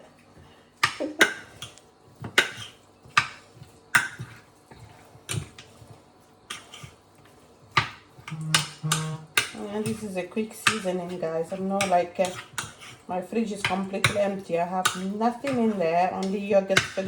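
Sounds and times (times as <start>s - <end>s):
utensils clinking against dishes: 8.2s - 17.0s.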